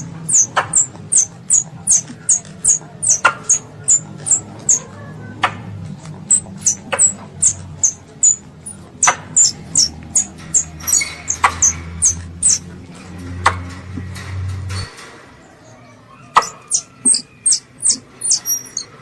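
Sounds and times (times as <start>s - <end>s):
young squirrel chirping: 0.0s - 4.9s, 6.2s - 12.7s, 16.3s - 19.0s
sharp clicks: 0.0s - 15.1s.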